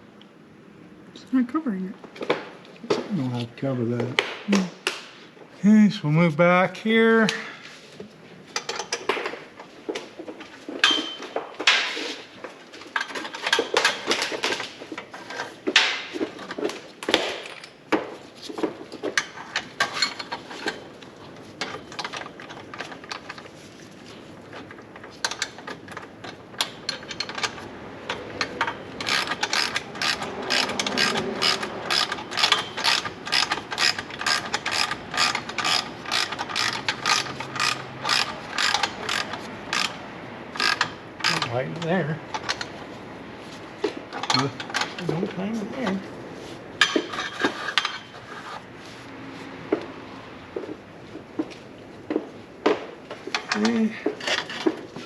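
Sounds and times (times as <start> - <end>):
ratchet wrench clicking: 28.4 - 41.5.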